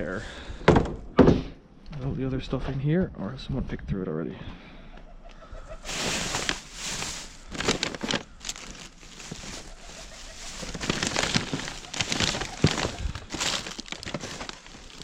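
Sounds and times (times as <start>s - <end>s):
rubbish rustling and clattering: 5.8s - 15.0s.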